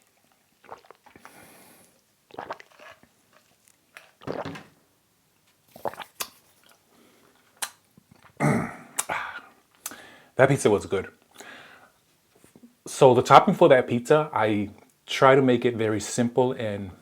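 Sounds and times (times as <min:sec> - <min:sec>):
chewing crunches: 0:00.2 - 0:01.4, 0:02.3 - 0:04.4
mouth sounds: 0:08.3 - 0:10.5.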